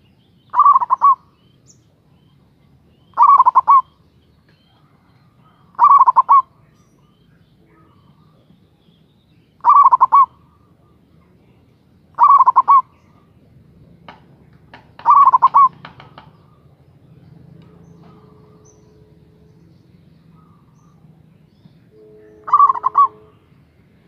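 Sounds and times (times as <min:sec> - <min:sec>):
dove trilled cooing: 0:00.5 - 0:01.3, 0:03.1 - 0:04.0, 0:04.7 - 0:06.6, 0:09.6 - 0:10.8, 0:12.1 - 0:13.3, 0:15.0 - 0:16.8, 0:22.4 - 0:23.4.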